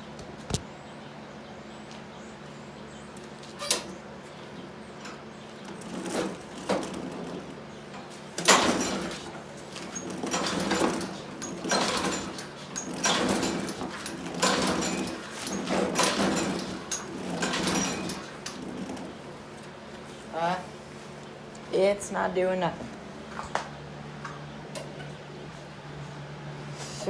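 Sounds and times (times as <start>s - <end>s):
lawnmower engine turning over: 3.2s - 19.8s.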